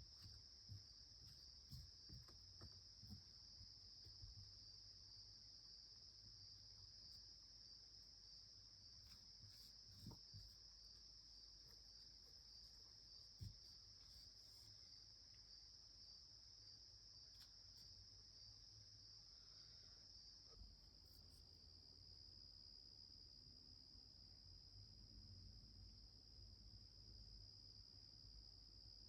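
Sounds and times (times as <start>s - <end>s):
soft thumps: 0.0s - 4.6s, 9.2s - 10.8s, 13.3s - 13.9s.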